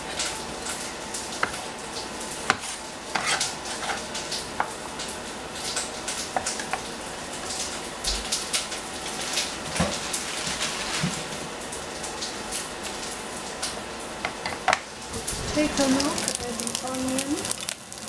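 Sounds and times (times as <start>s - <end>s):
onion sizzling in hot oil: 0.0s - 8.0s, 8.7s - 18.0s.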